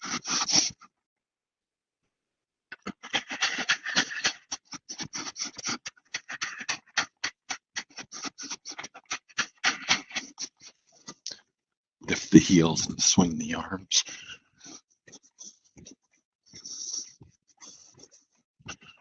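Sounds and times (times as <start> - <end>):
choppy scratching and rustling: 2.8 - 11.2.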